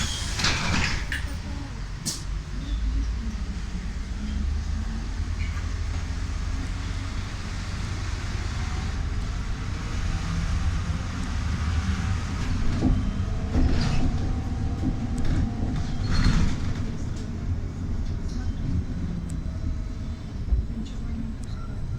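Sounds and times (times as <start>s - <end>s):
rattles and knocks: 0.0s - 1.5s
trolleybus ride rumble: 0.0s - 21.9s.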